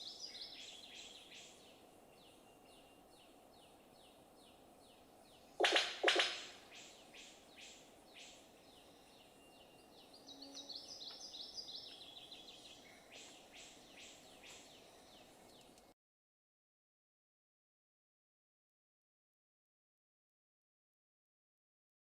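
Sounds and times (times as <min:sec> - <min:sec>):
harsh bird calls: 0:05.6 - 0:07.8.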